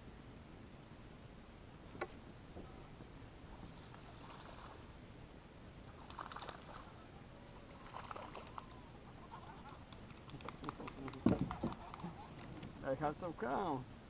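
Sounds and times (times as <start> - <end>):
water splashing and trickling: 3.4 - 10.2.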